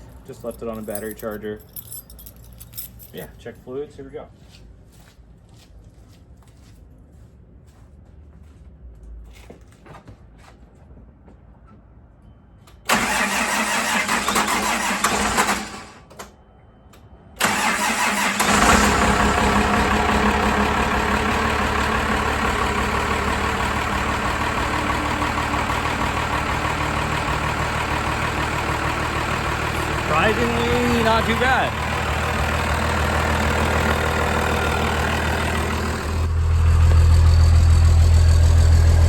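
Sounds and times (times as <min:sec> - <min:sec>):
diesel engine idling: 0:12.9 - 0:16.0, 0:17.4 - 0:39.0
engine starter cranking: 0:12.9 - 0:16.2, 0:17.4 - 0:36.3.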